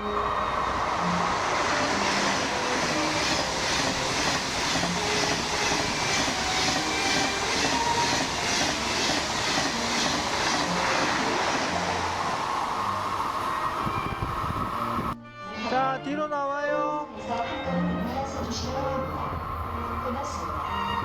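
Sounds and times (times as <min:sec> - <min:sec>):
train rumbling on rails: 0:00.0 - 0:15.2, 0:17.8 - 0:21.0
rhythmic wheel clatter: 0:01.4 - 0:15.1.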